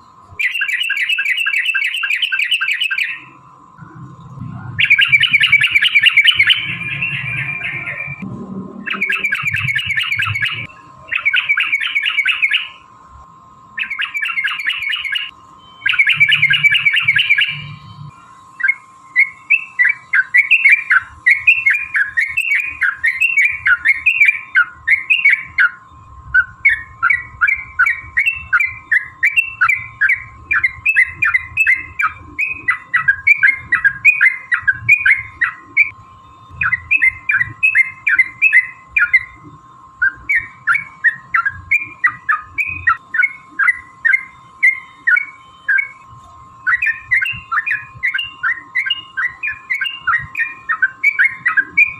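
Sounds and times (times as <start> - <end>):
bird harsh chattering: 0.4 - 3.3, 4.7 - 8.2, 8.8 - 12.8, 13.8 - 17.8, 26.4 - 35.9
bird bubbly song: 0.4 - 8.2, 8.8 - 12.9, 13.8 - 51.9.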